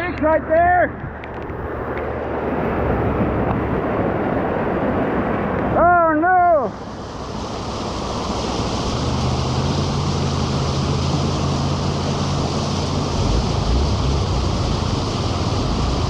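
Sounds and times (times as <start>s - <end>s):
rushing floodwater: 1.1s - 16.0s
heavy rain pouring: 7.6s - 16.0s
wind on microphone: 7.7s - 16.0s
low steady hum: 8.8s - 16.0s
low rumble: 9.0s - 16.0s.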